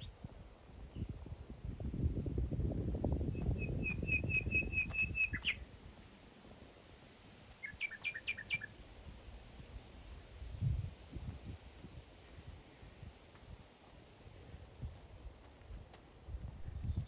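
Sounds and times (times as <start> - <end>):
songbird whistled notes: 3.3 - 5.6, 7.6 - 8.7.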